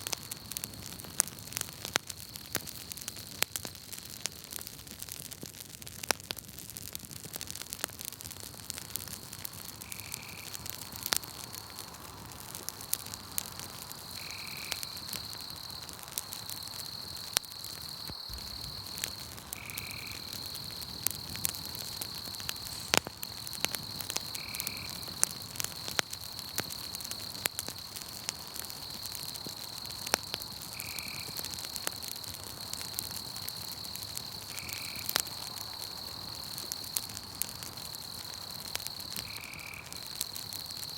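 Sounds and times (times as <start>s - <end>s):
campfire crackling and popping: 0.0s - 40.9s
insect trill: 8.8s - 40.9s.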